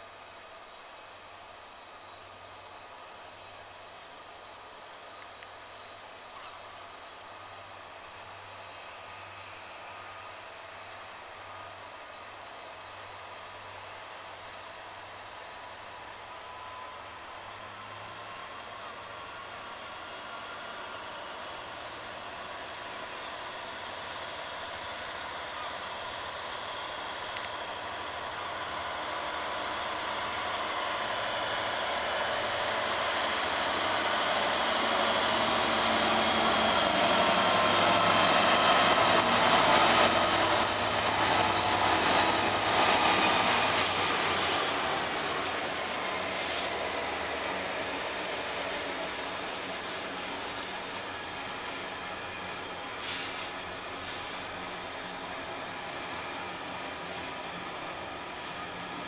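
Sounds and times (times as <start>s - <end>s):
diesel locomotive engine: 0.0s - 59.0s
high wheel squeal: 30.6s - 59.0s.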